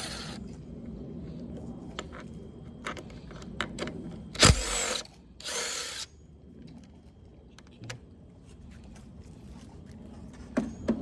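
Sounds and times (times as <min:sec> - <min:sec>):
rasping burst: 0:04.4 - 0:06.1.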